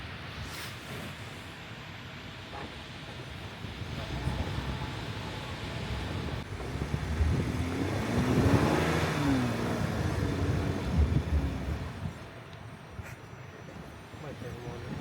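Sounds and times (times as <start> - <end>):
engine revving under load: 3.8 - 12.1.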